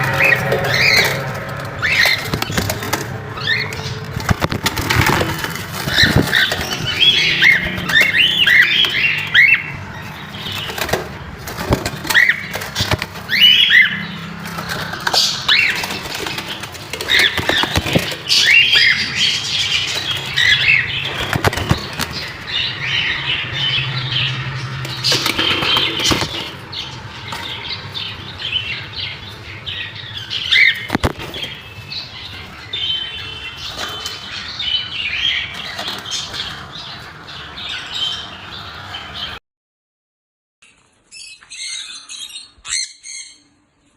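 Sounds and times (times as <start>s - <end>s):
wings flapping: 0.0s - 22.5s, 24.8s - 27.9s, 30.5s - 32.5s
parrots chirping and squawking: 0.0s - 39.4s, 40.6s - 43.7s.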